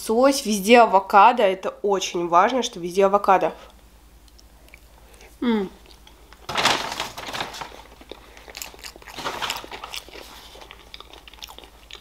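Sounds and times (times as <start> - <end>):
wet chewing mouth sounds: 7.9 - 12.0.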